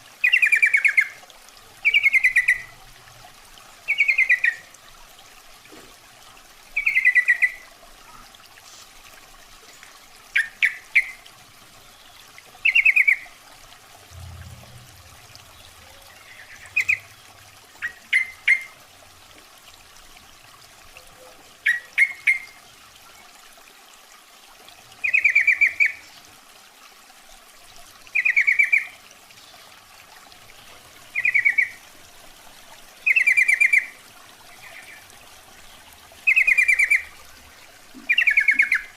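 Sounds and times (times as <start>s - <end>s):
bird bubbly calls: 0.2s - 1.2s, 1.8s - 2.8s, 3.9s - 4.7s, 6.7s - 8.3s, 10.3s - 13.4s, 14.1s - 18.9s, 20.9s - 22.6s, 25.0s - 26.2s, 28.1s - 29.0s, 30.6s - 31.9s, 33.0s - 38.9s.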